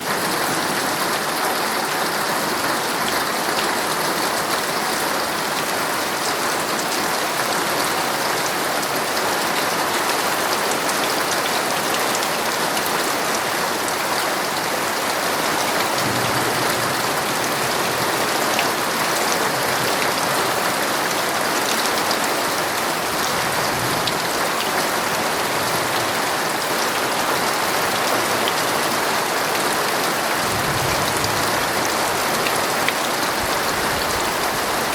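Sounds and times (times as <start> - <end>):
heavy rain on a tent: 0.0 - 34.9.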